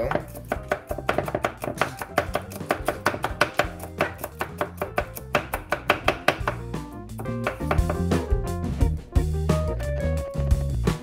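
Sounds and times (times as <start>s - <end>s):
knife chopping on wooden board: 0.0s - 6.6s, 7.2s - 8.2s.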